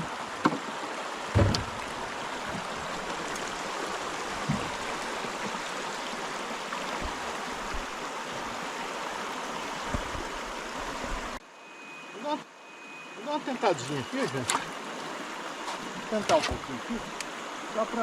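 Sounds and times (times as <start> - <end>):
river water flowing: 0.0 - 18.0
dull knocks: 1.3 - 2.7, 4.4 - 4.9.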